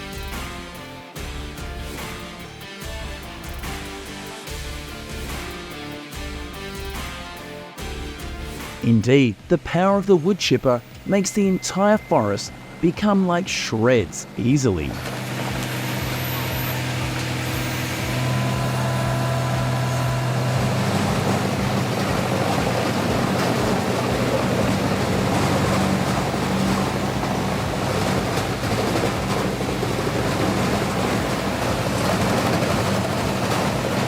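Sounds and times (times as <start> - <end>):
wood chipper engine hum: 11.8 - 34.0
dense rushing noise: 14.8 - 34.0.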